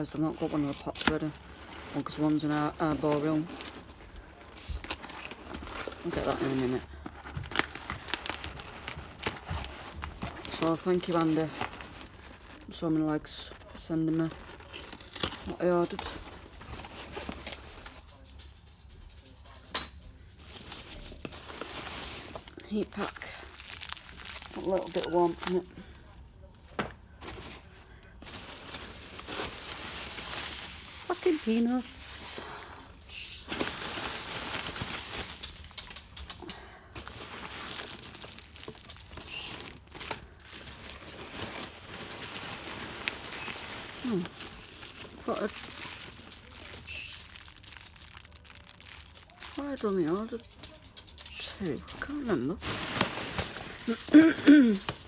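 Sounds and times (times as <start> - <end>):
packing peanuts rustling: 0.0 - 19.4, 20.2 - 55.0
hard items clicking and knocking: 35.0 - 37.2.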